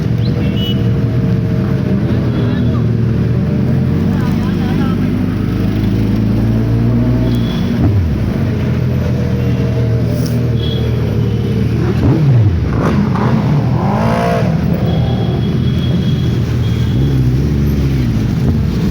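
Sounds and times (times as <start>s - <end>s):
motorbike engine revving: 2.9s - 18.9s.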